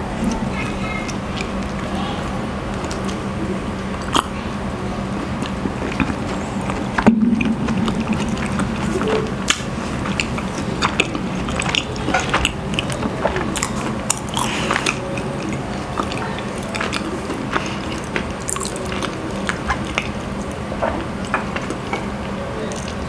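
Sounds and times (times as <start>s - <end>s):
steady low hum: 0.0s - 23.0s
wet mouth clicks chewing: 3.9s - 4.4s, 5.3s - 22.1s.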